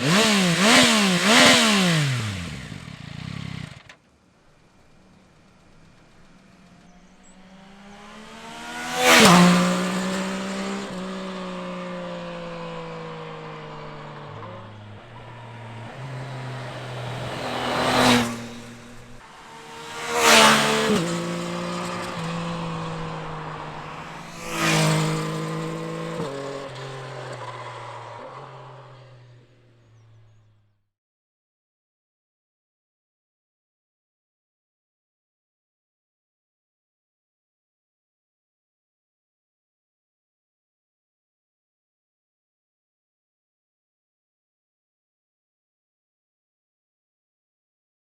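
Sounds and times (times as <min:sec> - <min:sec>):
motorcycle engine running: 0:00.0 - 0:30.5.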